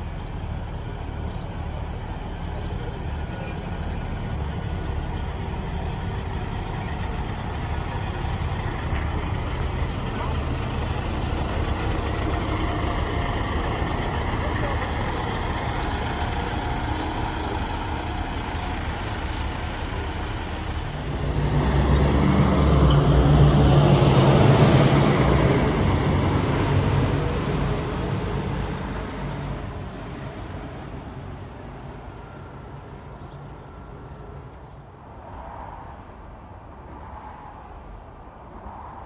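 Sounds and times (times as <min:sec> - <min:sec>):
bus driving past: 0:00.0 - 0:39.0.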